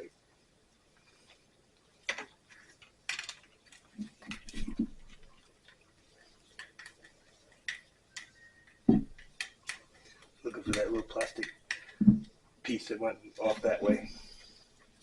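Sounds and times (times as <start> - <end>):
small parts clicking and tapping: 2.0 - 12.3.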